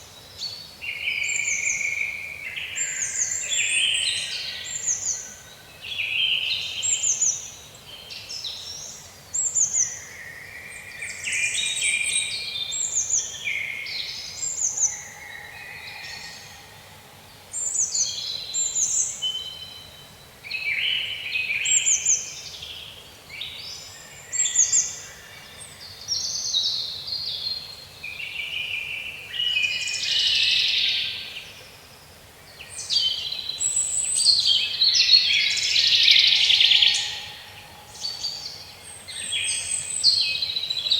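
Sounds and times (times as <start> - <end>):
songbirds chirping and singing: 32.5 - 40.9.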